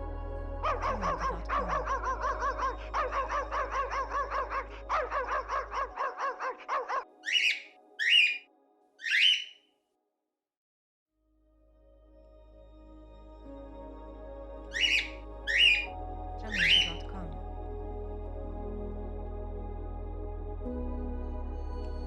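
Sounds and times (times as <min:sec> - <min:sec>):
animal chattering calls: 0:00.7 - 0:08.4, 0:09.0 - 0:09.6, 0:14.8 - 0:15.9, 0:16.5 - 0:17.1
short high harsh calls: 0:07.2 - 0:08.4, 0:09.0 - 0:09.6.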